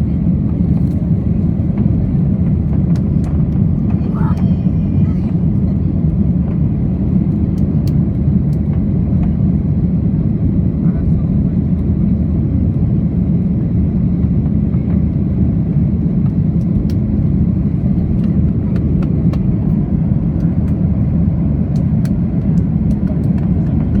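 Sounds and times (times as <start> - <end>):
airliner engine and airflow rumble: 0.0 - 24.0.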